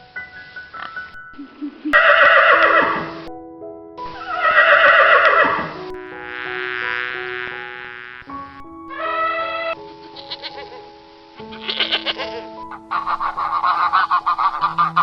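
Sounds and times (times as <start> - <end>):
background music: 0.0 - 15.0
horse whinnying: 2.0 - 3.0, 4.3 - 5.6.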